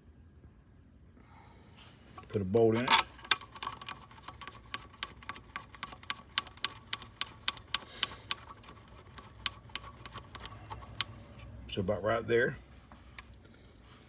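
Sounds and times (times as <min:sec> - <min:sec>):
ratchet clicking: 0:02.8 - 0:11.3.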